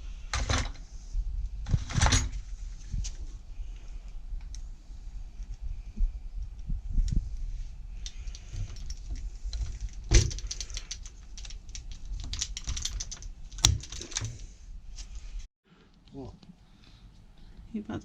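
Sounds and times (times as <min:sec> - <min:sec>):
door lock clicks and rattles: 0:08.0 - 0:14.4.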